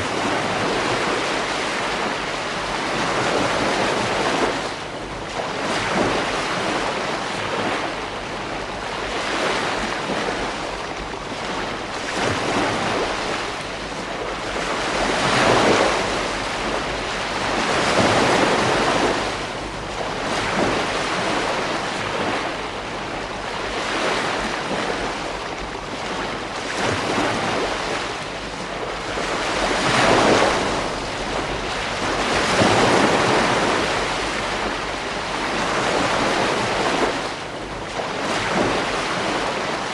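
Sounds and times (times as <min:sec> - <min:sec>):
ocean waves breaking on beach: 0:00.0 - 0:39.9
wind: 0:00.0 - 0:39.9.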